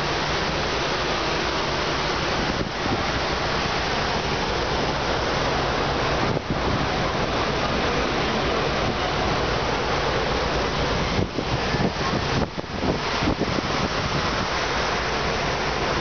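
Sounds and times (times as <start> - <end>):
water rushing: 0.0 - 16.0
wind on microphone: 6.1 - 9.3, 10.6 - 16.0.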